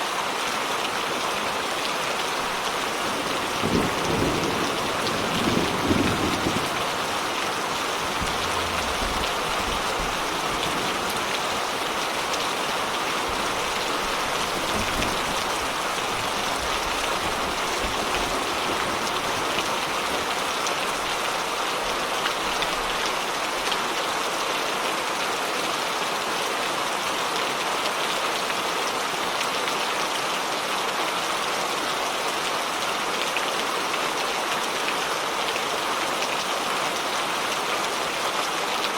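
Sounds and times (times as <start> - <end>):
steady rain falling: 0.0 - 38.9
low thunder rumble: 3.4 - 12.0.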